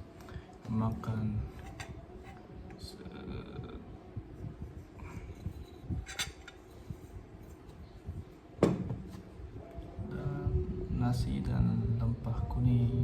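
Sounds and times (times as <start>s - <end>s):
plate and cutlery clinking: 1.6s - 2.4s, 5.4s - 6.8s
knock on dish: 8.6s - 9.0s.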